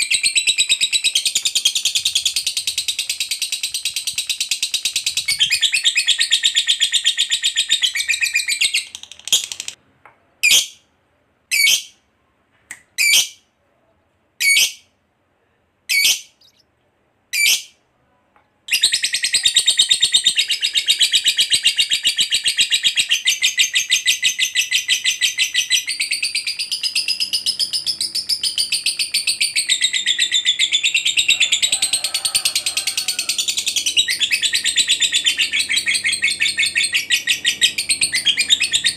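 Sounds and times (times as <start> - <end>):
lovebird short chirps: 15.9 - 16.6.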